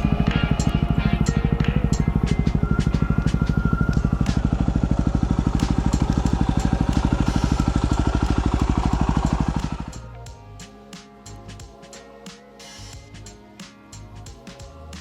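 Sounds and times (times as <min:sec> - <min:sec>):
motorcycle engine idling: 0:00.0 - 0:10.7.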